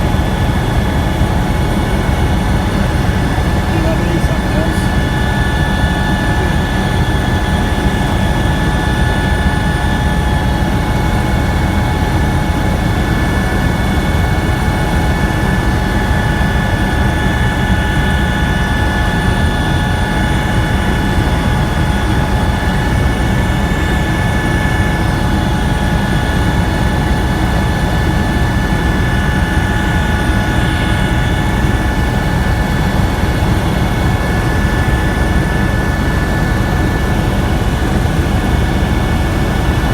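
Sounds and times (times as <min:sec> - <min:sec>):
helicopter engine and rotor drone: 0:00.0 - 0:39.9
high whine: 0:01.3 - 0:25.8.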